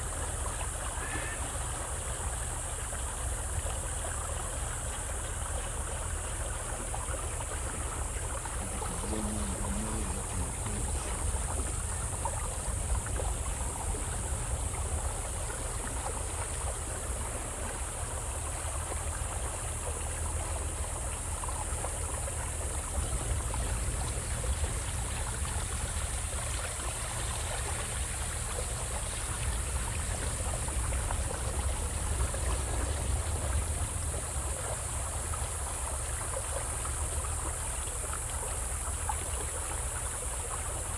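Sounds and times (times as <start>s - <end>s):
boat engine rumble: 0.0s - 40.9s
rushing water: 0.0s - 40.9s
high hiss: 7.8s - 18.8s.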